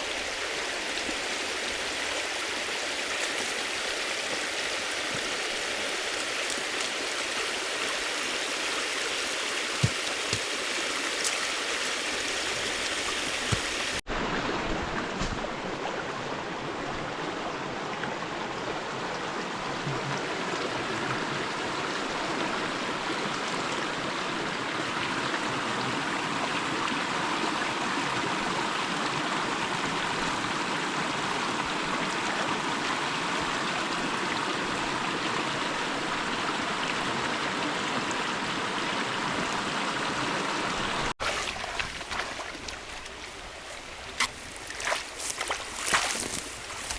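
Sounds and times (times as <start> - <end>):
river water rushing: 0.0 - 14.0, 39.9 - 46.9.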